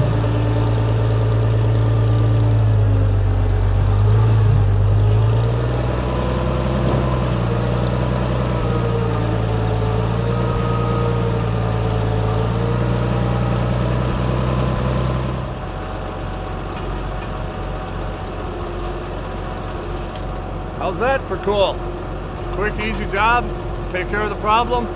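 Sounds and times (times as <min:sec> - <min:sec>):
tractor engine running: 0:00.0 - 0:24.9.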